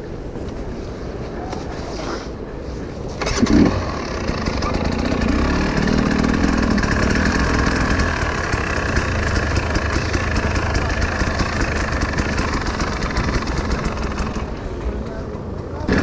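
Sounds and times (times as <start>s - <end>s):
wind noise: 0.0s - 16.0s
motorcycle engine running: 3.2s - 16.0s.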